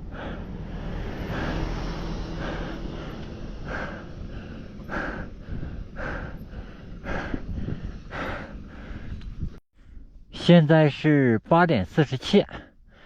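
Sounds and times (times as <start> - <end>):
person breathing hard: 0.0 - 10.2, 12.5 - 13.0
steady low rumble: 0.0 - 10.5.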